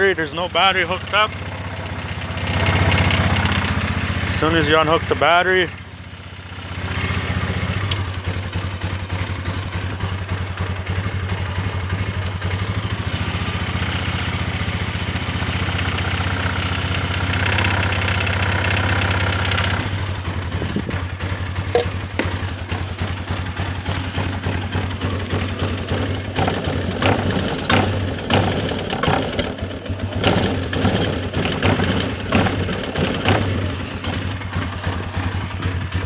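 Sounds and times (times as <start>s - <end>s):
atv engine idling roughly: 0.0s - 36.0s.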